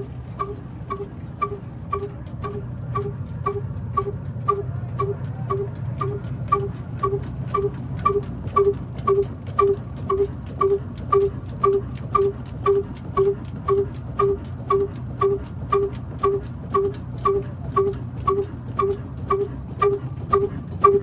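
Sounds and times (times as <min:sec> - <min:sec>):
diesel engine humming: 0:00.0 - 0:21.0.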